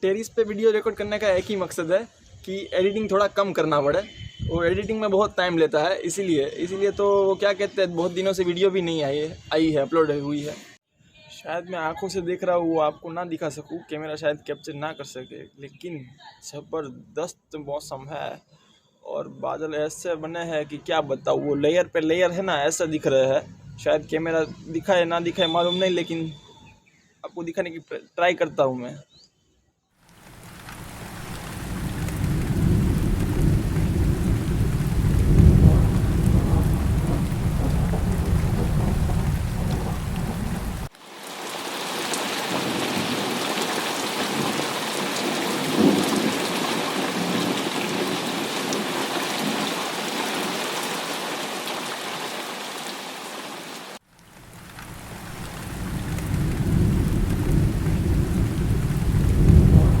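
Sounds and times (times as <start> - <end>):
rain hiss: 30.1 - 60.0
deep low rumble: 31.9 - 40.9.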